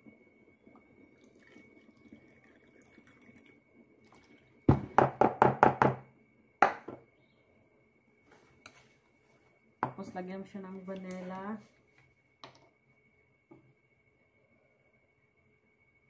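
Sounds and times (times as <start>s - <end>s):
water pouring into plastic cup: 0.7s - 4.7s.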